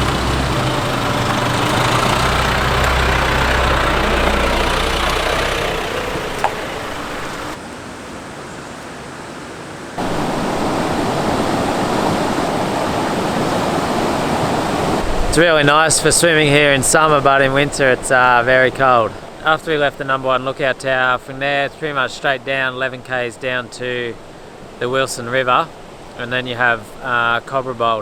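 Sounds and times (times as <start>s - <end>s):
tyre and road noise: 0.0s - 7.6s
vehicle engine drone: 0.0s - 7.6s
river water rushing: 0.0s - 28.0s.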